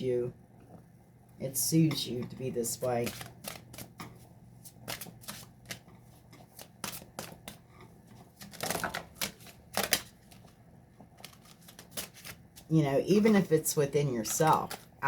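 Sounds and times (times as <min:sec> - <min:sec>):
cards riffling: 0:03.0 - 0:03.9, 0:04.7 - 0:05.8, 0:06.6 - 0:07.6, 0:08.4 - 0:10.5, 0:11.2 - 0:12.7
cards clicking: 0:08.5 - 0:10.1.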